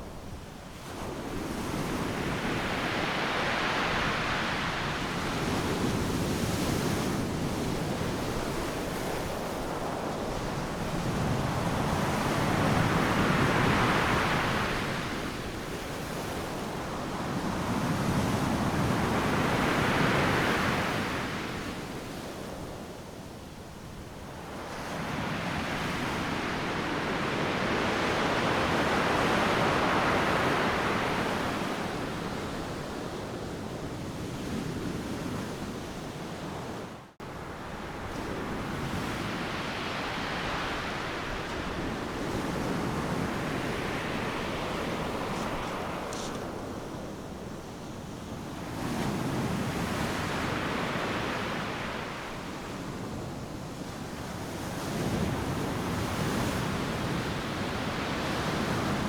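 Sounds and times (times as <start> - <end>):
ocean waves breaking: 37.4 - 52.2.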